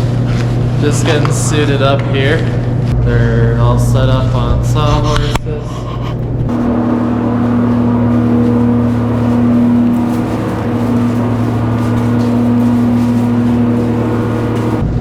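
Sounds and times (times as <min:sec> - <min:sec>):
motor humming: 0:06.5 - 0:15.0.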